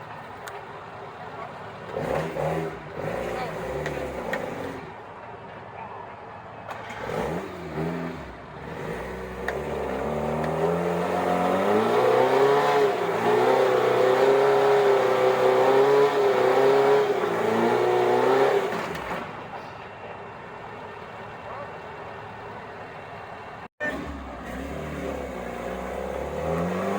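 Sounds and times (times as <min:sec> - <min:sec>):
off-road vehicle engine revving: 0:01.8 - 0:05.0, 0:06.7 - 0:19.4, 0:23.8 - 0:26.9.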